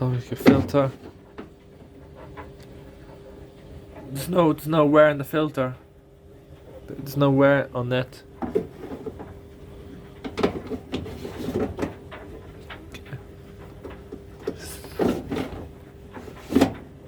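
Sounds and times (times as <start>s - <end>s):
steady low hum: 0.0s - 17.0s
plastic lint filter clattering: 10.1s - 17.0s.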